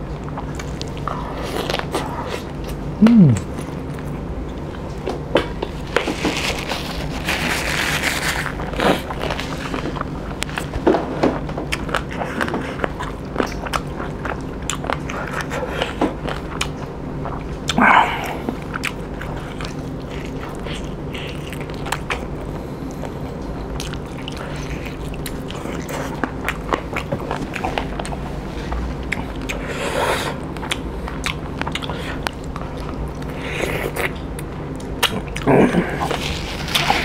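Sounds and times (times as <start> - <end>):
chewing with wet mouth clicks: 11.7 - 28.2, 29.1 - 29.6, 30.4 - 35.5.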